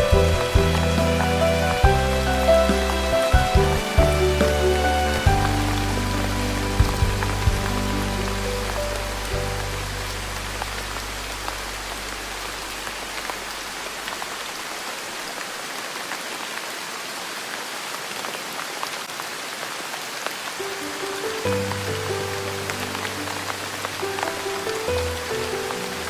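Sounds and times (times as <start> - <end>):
soft low music: 0.0 - 13.3
steady rainfall: 0.0 - 26.0.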